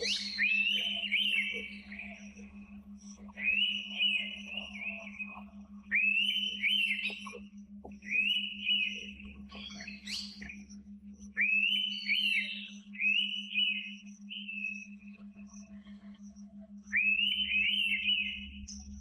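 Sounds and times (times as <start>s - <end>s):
bird whistling: 0.0s - 2.6s, 3.2s - 7.4s, 8.0s - 10.6s, 11.4s - 15.0s, 16.9s - 18.7s
low pulsing hum: 0.0s - 19.0s.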